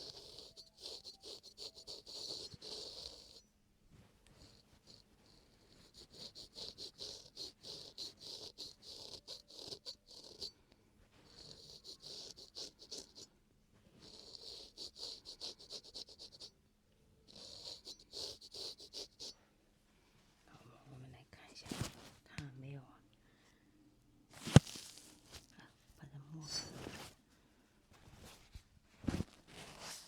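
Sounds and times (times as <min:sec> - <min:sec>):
razor scraping skin: 0:00.0 - 0:03.4, 0:04.4 - 0:10.6, 0:11.2 - 0:13.3, 0:14.0 - 0:16.5, 0:17.3 - 0:19.4, 0:24.4 - 0:25.4.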